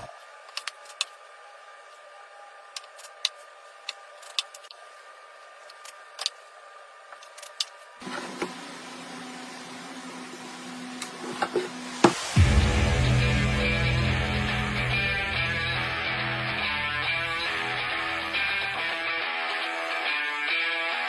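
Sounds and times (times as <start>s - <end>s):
steady low hum: 12.2s - 19.1s.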